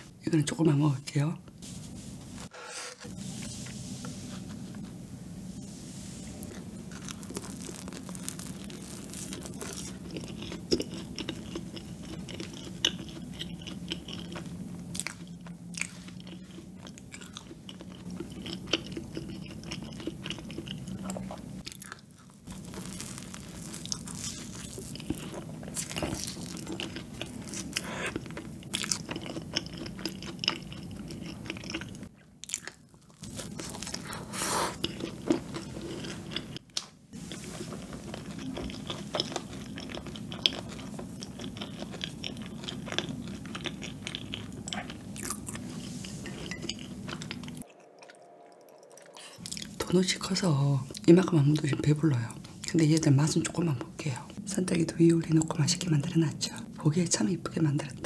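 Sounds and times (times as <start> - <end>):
steady low hum: 0.0 - 21.7
biting and chewing donut: 6.8 - 45.8.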